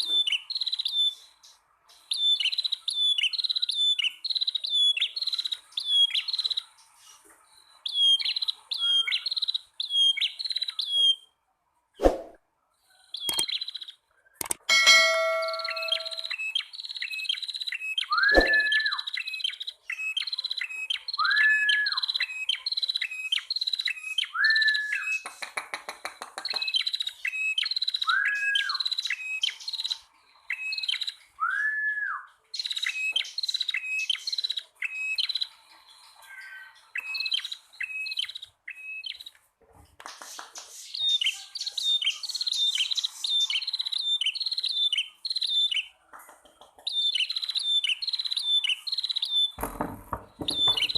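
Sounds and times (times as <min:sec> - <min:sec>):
songbirds chirping: 0:00.0 - 0:50.9
whistled bird notes: 0:15.0 - 0:25.3, 0:26.4 - 0:35.5, 0:50.4 - 0:50.9.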